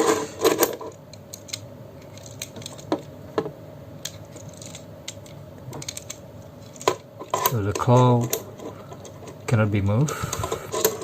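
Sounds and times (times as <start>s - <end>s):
plastic model kit clicking: 1.1s - 2.9s, 4.0s - 6.8s.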